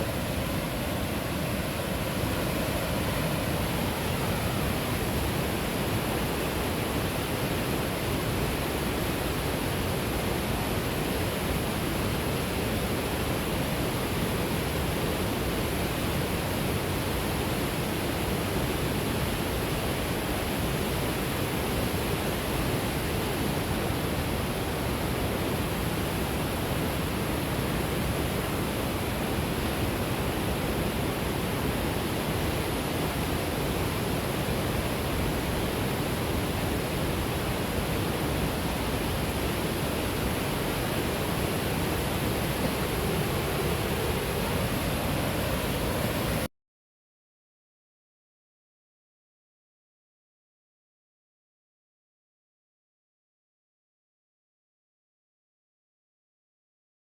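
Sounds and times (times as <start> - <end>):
waterfall roaring: 0.0 - 14.6, 17.2 - 46.5.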